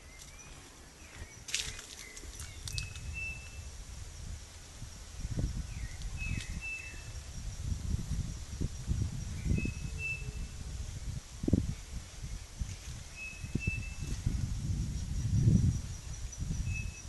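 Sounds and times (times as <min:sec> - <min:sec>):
wind rumble on microphone: 0:00.0 - 0:17.0
bird whistling call: 0:02.5 - 0:03.6, 0:05.8 - 0:07.1, 0:09.4 - 0:10.5, 0:13.2 - 0:14.1.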